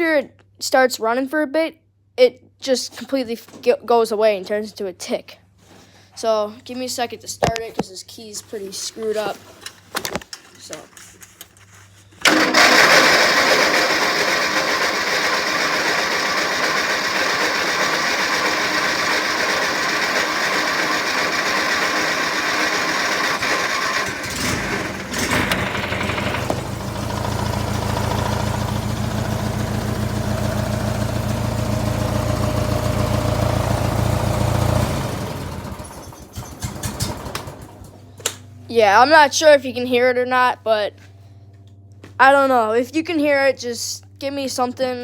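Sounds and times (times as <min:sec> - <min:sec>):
small engine running: 0:12.2 - 0:38.0.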